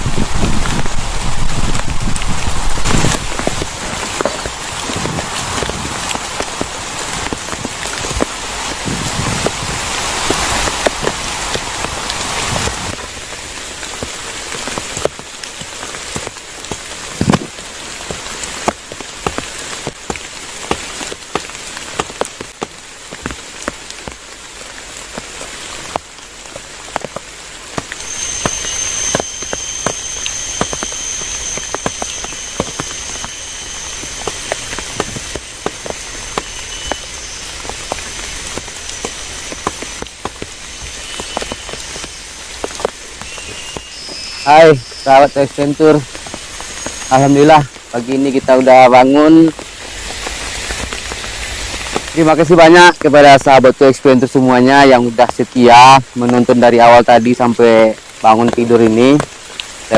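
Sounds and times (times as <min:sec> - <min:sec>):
thin high whine: 0:00.0 - 0:16.4, 0:27.8 - 0:59.3
rain drops tapping: 0:00.0 - 0:59.9.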